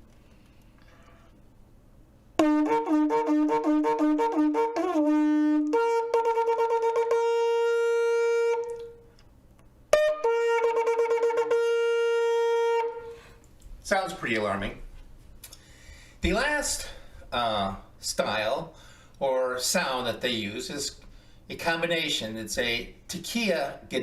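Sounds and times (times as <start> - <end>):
shofar blasts: 2.4 - 9.1, 9.9 - 13.3.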